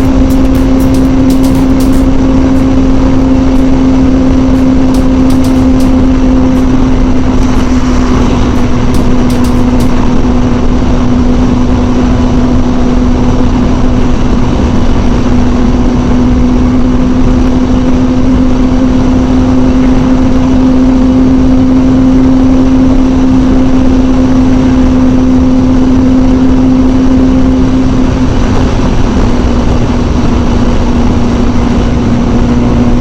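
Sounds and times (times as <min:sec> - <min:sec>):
motorcycle engine cruising: 0:00.0 - 0:33.0
wind noise: 0:27.0 - 0:33.0.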